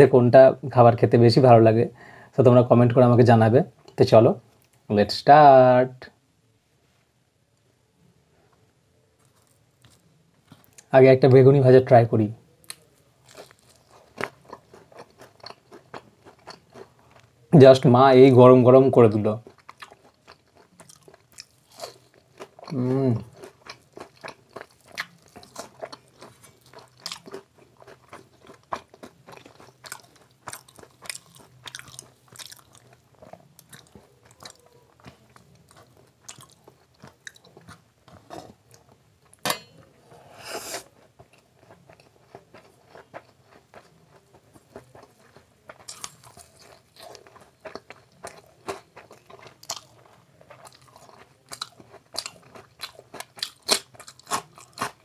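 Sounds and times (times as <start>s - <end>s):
man chewing and crunching: 9.2s - 10.9s, 12.6s - 17.5s, 19.1s - 39.4s, 40.6s - 55.0s.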